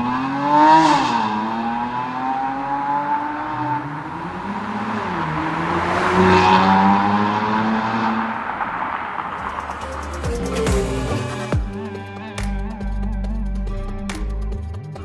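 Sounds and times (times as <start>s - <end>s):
car engine through exhaust: 0.0s - 11.8s.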